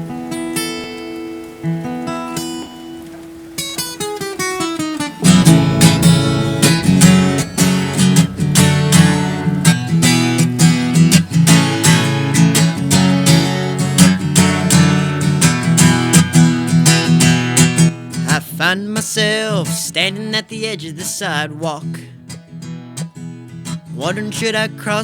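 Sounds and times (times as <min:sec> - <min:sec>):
acoustic guitar falling notes: 0:05.0 - 0:17.8
acoustic guitar chords strummed: 0:05.2 - 0:12.4.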